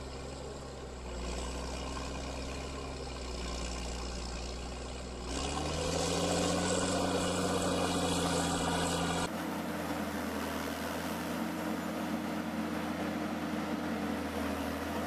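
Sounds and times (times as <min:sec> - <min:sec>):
engine running steadily: 0:00.0 - 0:15.0
engine revving: 0:01.0 - 0:09.3.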